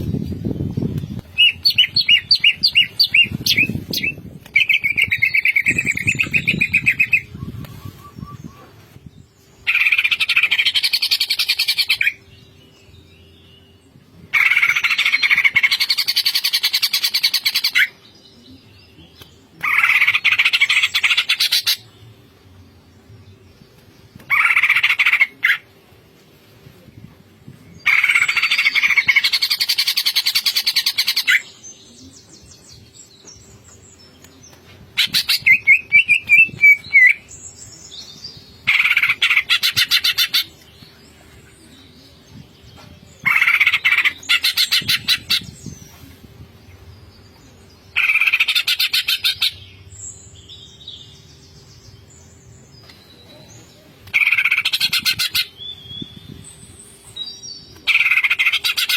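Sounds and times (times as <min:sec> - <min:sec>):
bird singing trills and whistles: 0:00.0 - 0:09.0, 0:35.0 - 0:40.6, 0:52.7 - 0:58.9.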